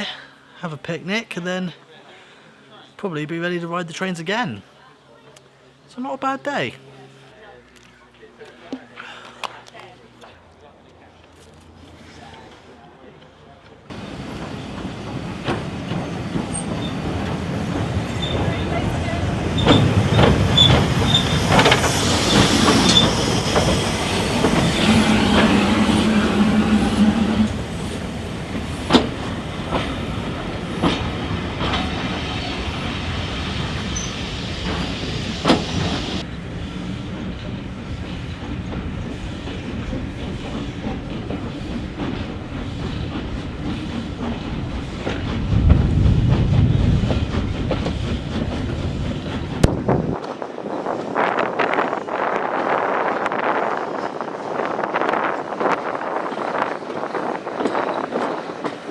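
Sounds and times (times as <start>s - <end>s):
high wheel squeals: 13.9s - 36.2s
train wheels clattering: 13.9s - 36.2s.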